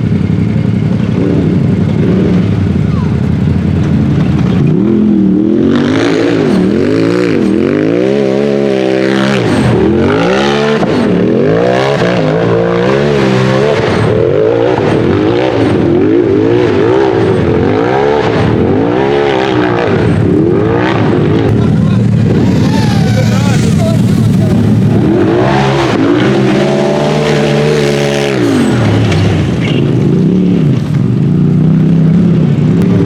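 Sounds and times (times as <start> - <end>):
engine revving: 0.0 - 33.0.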